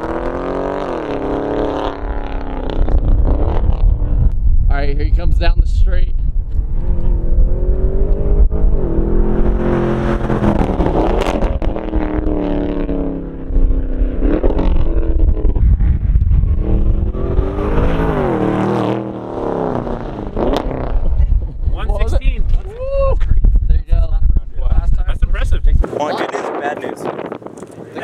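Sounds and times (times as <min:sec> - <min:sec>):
car engine revving: 0:00.0 - 0:04.3, 0:06.5 - 0:21.6.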